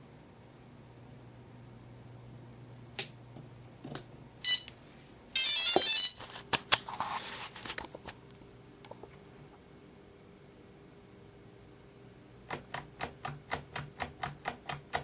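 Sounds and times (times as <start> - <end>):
high-pitched electronic beeps: 4.5 - 4.7, 5.4 - 6.2.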